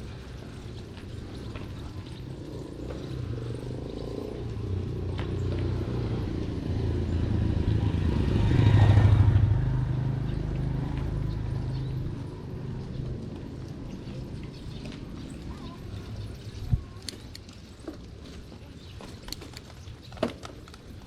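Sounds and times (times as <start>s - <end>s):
vehicle engine passing by: 1.3s - 15.8s.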